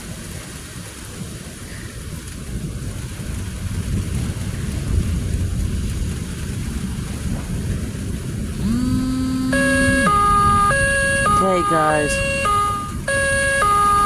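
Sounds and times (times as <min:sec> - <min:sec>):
heavy rain: 0:00.0 - 0:14.0
low rising tone: 0:08.6 - 0:11.4
two-tone siren: 0:08.6 - 0:14.0.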